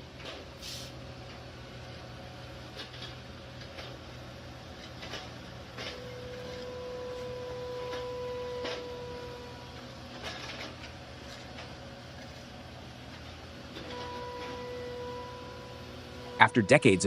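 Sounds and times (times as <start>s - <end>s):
steady high tone: 16.4s - 17.0s.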